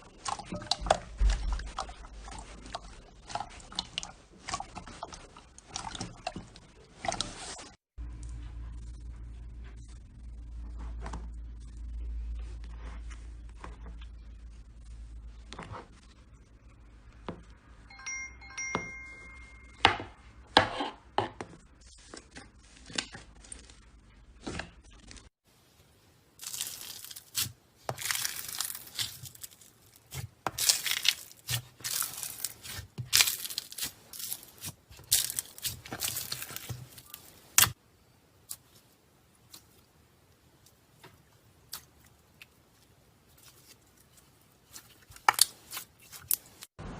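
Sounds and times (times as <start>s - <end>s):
chime-like tones: 17.9s - 20.1s
slime crackling and popping: 26.4s - 37.8s, 43.3s - 46.6s.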